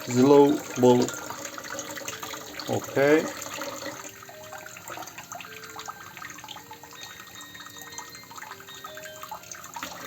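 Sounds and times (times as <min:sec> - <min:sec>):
small drips and plinks: 0:00.0 - 0:10.0
water trickling: 0:00.0 - 0:10.0.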